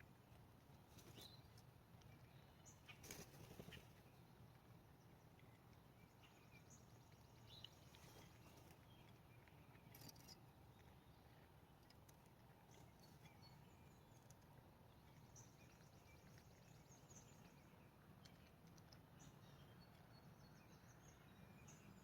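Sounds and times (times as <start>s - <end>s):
soft bird chirps: 0.0s - 22.0s
small clicks: 18.2s - 20.1s.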